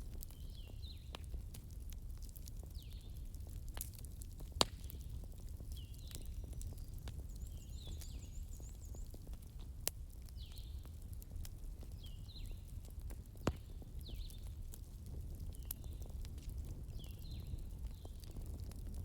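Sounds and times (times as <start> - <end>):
sharp fire pops: 0.0 - 8.3, 11.4 - 19.0
wood fire crackling: 0.0 - 19.0.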